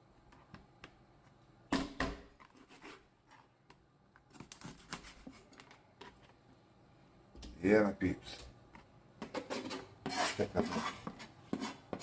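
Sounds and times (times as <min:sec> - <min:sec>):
knife scraping cutting board: 0:02.4 - 0:03.5, 0:09.2 - 0:12.0.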